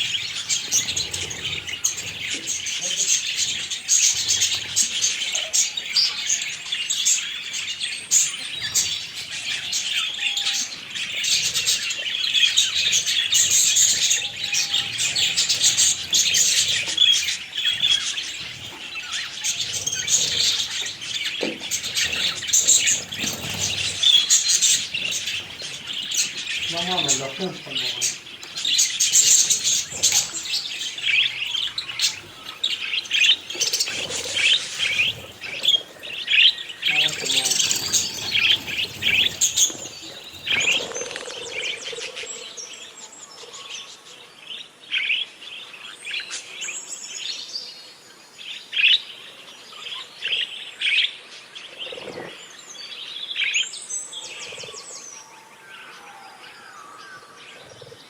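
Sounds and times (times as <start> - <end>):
budgerigars chirping: 0.0 - 42.4.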